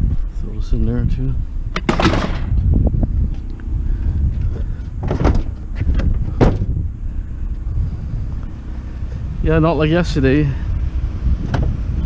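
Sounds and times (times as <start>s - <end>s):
vehicle engine rumbling: 0.0s - 12.0s
metal clunks: 1.7s - 2.6s, 4.8s - 6.7s.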